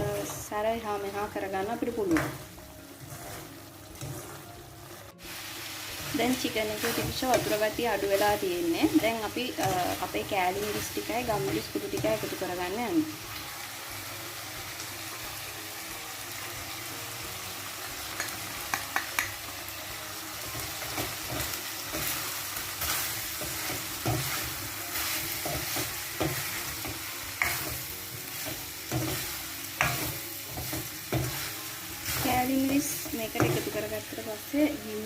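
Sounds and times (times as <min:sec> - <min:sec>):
chicken sizzling in a pan: 0:00.0 - 0:35.0
spoon scraping against pan: 0:02.2 - 0:05.4, 0:20.8 - 0:33.8.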